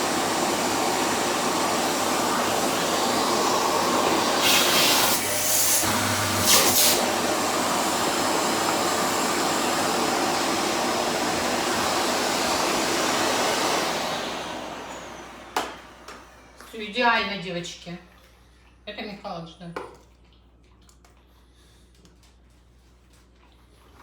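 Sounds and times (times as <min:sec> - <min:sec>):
vacuum cleaner running: 0:00.0 - 0:17.8.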